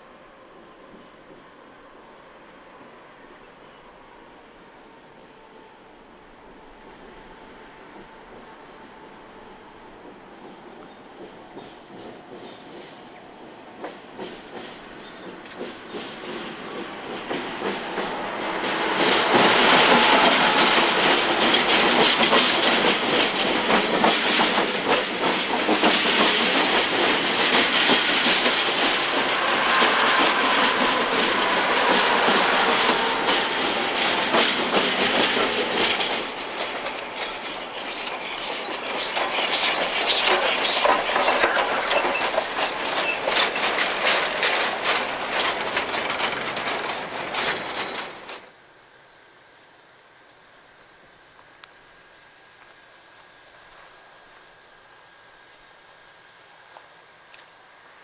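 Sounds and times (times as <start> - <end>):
train wheels clattering over joints: 10.0 - 48.5.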